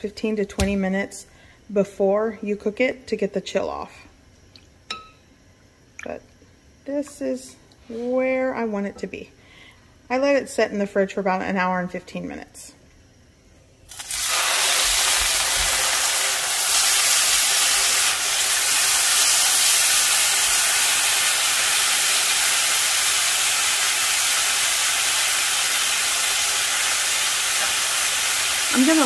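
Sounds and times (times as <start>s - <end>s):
meat sizzling in a grill pan: 13.9s - 29.0s.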